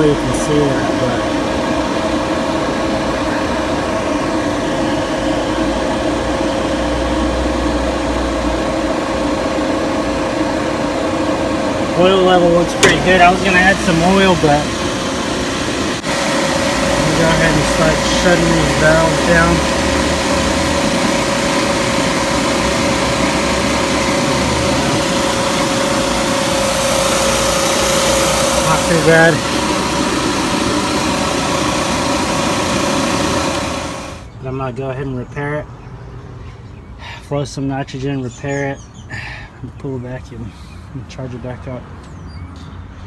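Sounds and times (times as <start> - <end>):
refrigerant recovery machine humming: 0.0 - 34.4.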